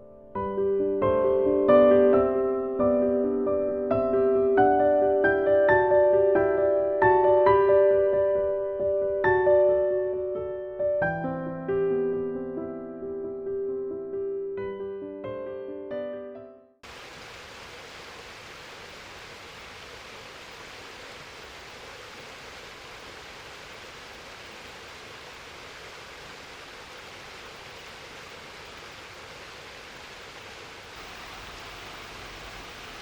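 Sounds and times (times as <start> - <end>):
stream water rushing over rocks: 16.8 - 33.0.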